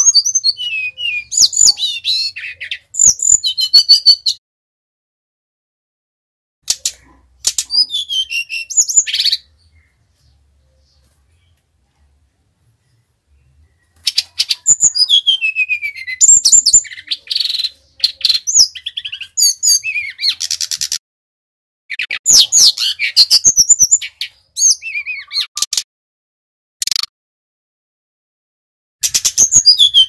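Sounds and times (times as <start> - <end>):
bird singing whistled notes: 0.0 - 4.4, 7.6 - 10.0, 13.4 - 21.0, 21.9 - 25.6, 29.0 - 30.0.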